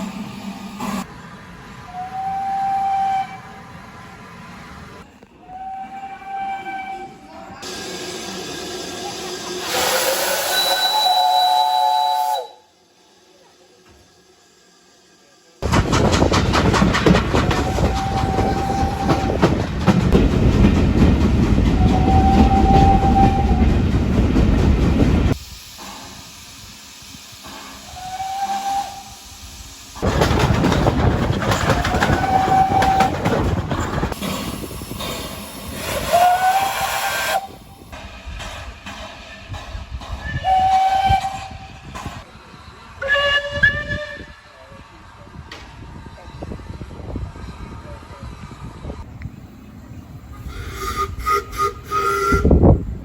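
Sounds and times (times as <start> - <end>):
steam locomotive whistle blasts: 1.9 - 3.8, 5.4 - 7.3, 9.6 - 12.8, 21.8 - 23.7, 27.8 - 29.4, 36.0 - 37.7, 40.2 - 41.8, 43.0 - 44.6, 50.6 - 52.8
hiss of steam engine: 7.6 - 15.6, 25.3 - 30.0, 34.2 - 43.0, 50.3 - 52.5.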